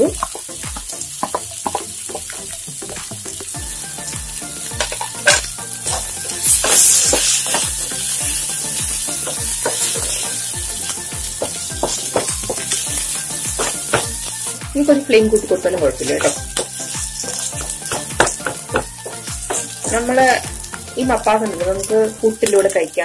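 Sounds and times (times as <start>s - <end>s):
onions sizzling in hot oil: 0.0s - 23.0s
spatula scraping a pan: 1.2s - 2.4s, 4.6s - 14.5s, 15.9s - 20.4s.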